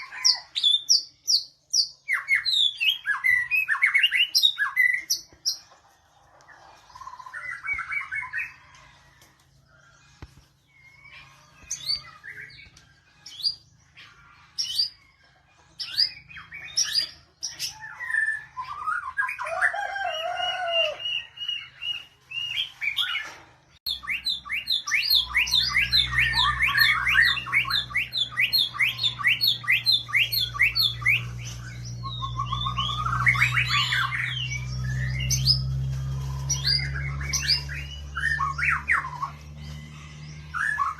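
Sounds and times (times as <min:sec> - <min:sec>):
bird singing: 0:00.0 - 0:05.8, 0:06.4 - 0:40.9.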